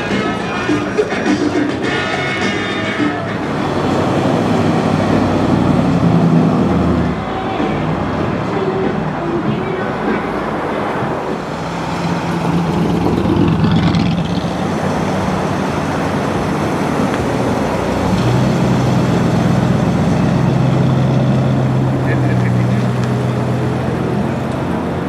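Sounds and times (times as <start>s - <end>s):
cars driving slowly past: 0.0s - 25.0s
deep steady engine note: 0.0s - 25.0s.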